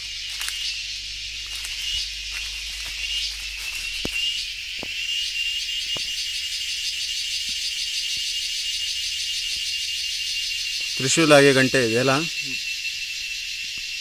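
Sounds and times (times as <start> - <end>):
insects chorus trilling: 0.0 - 14.0.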